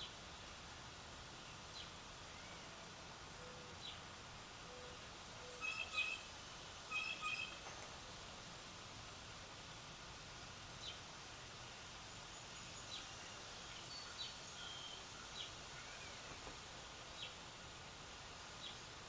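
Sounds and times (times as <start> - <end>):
steady background hiss: 0.0 - 19.0
birds chirping: 6.9 - 7.9.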